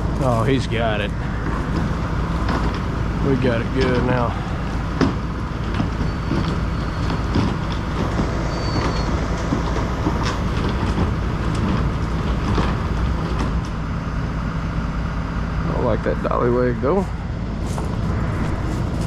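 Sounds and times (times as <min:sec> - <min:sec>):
heavy diesel truck engines: 0:00.0 - 0:19.0
clanks and knocks: 0:01.3 - 0:13.8.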